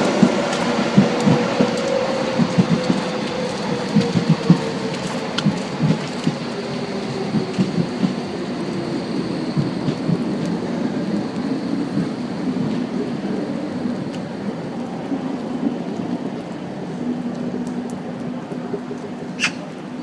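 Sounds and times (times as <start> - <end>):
train rumbling on track: 0.0 - 20.0.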